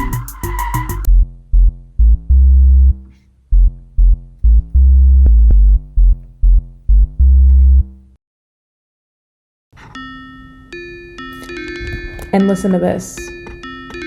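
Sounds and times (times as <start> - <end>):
synth bass riff: 0.0 - 8.2.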